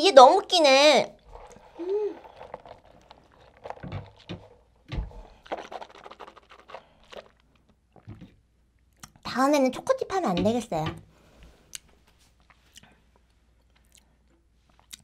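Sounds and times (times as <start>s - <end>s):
sipping through a straw: 1.2s - 8.1s
soft chewing: 1.2s - 9.2s, 11.4s - 15.0s.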